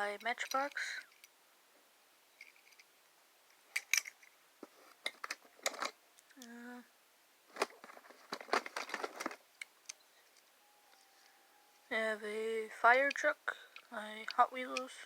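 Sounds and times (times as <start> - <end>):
toy cars clicking and rattling: 0.2 - 1.3, 3.8 - 4.3.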